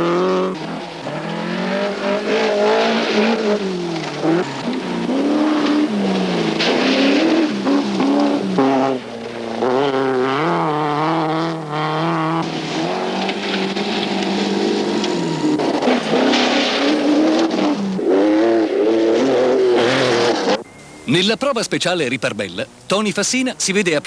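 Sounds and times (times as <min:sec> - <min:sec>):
rally car engine revving: 0:00.0 - 0:20.7.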